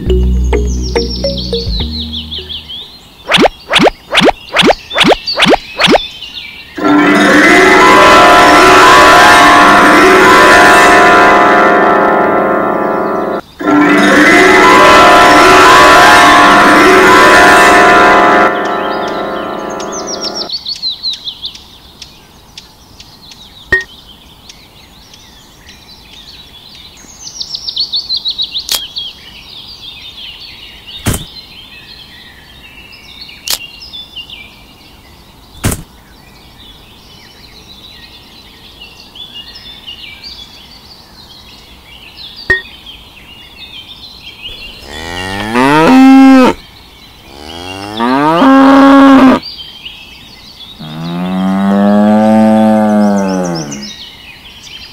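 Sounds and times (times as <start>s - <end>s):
small birds chirping: 0.0s - 6.8s, 19.7s - 54.9s
cow mooing: 44.5s - 46.6s, 47.3s - 49.4s, 50.8s - 53.9s.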